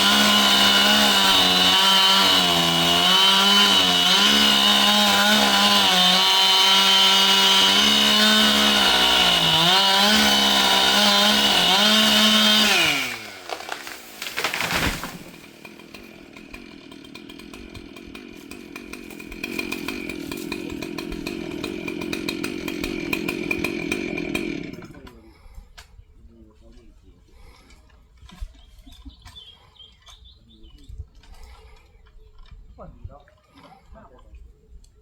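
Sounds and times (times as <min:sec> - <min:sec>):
chainsaw cutting and idling: 0:00.0 - 0:25.3
loud crackle: 0:13.1 - 0:15.7.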